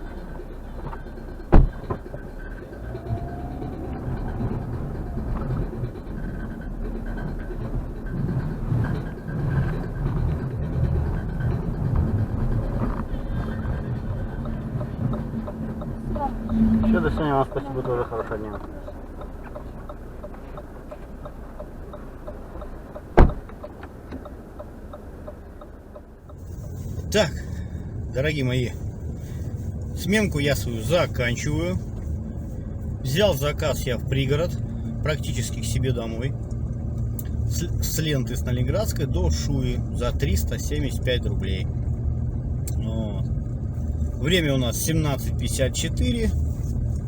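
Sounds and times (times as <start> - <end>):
car cabin engine rumble: 0.0 - 47.0
turn signal ticking: 0.0 - 47.0
sharp loud thump: 1.5 - 2.0, 23.2 - 23.6.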